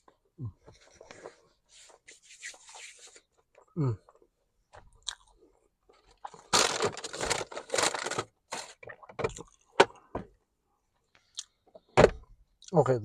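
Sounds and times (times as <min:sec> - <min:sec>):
chewing crunchy food: 0:05.0 - 0:05.5.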